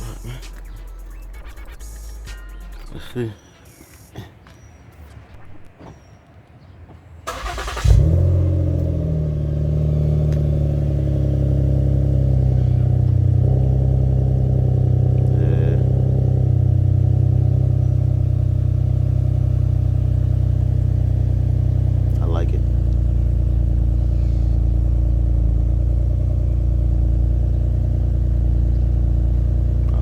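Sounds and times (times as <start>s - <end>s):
car engine starting and idling: 0.0s - 3.8s, 5.3s - 30.0s
starter motor cranking: 7.3s - 8.4s.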